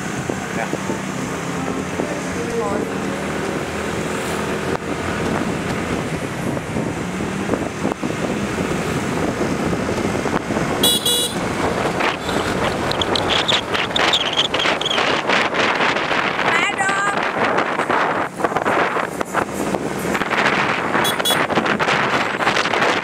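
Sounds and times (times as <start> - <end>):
street traffic passing: 0.0 - 23.0
short high horn toot: 10.8 - 11.4, 21.0 - 21.4.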